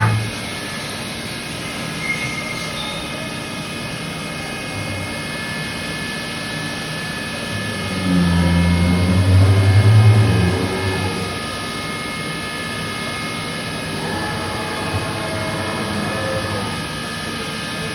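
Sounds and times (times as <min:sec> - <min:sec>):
faint high whining tones: 0:06.6 - 0:12.4, 0:13.0 - 0:17.9
machinery noise: 0:07.1 - 0:17.9
low rumble: 0:07.5 - 0:11.6.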